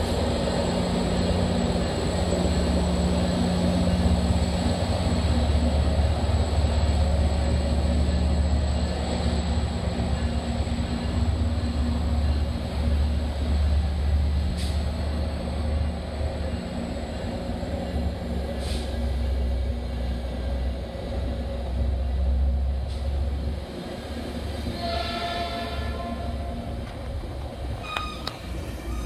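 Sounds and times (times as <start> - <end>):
diesel train rumbling: 0.0 - 29.0
train horn: 24.6 - 26.6.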